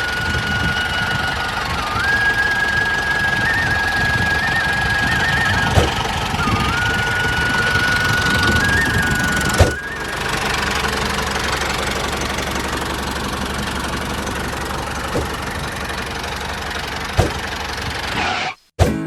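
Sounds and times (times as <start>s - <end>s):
small motor running: 0.0s - 18.2s
short knocks: 5.7s - 6.4s, 15.0s - 15.8s, 16.9s - 18.1s.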